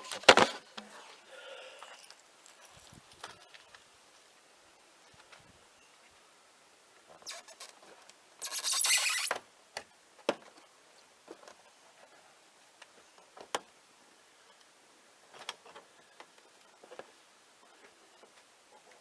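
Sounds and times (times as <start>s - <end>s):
knife scraping wall: 0.0s - 1.1s, 8.4s - 9.4s.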